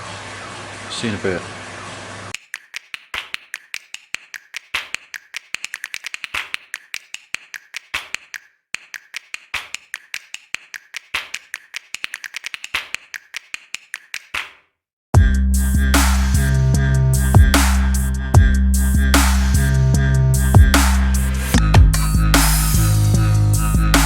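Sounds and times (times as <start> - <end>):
sharp clicks and taps: 2.4 - 14.6.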